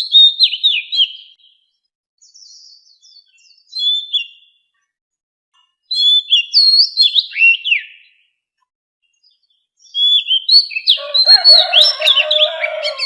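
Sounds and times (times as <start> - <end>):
bird singing whistled phrases: 0.0 - 1.6, 2.2 - 4.6, 5.9 - 8.2, 9.8 - 13.0.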